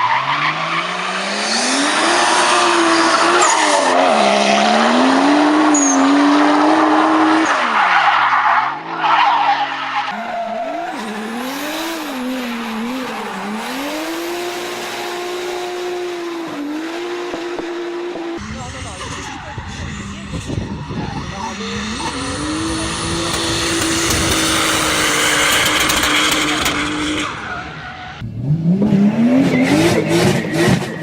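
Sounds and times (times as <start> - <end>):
car engine revving hard: 0.0 - 7.8, 10.1 - 31.0
tyre squeal: 2.8 - 4.0, 5.6 - 14.3, 18.4 - 28.2.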